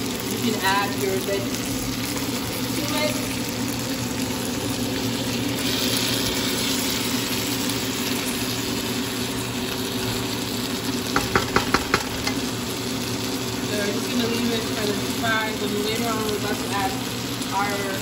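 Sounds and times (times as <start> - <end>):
food sizzling in a pan: 0.0 - 18.0
spatula knocking on a pan: 11.1 - 12.4.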